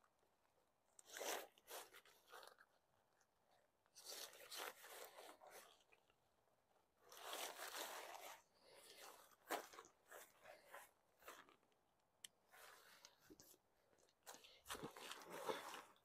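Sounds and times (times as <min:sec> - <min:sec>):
tent fabric rustling: 0:07.0 - 0:11.6.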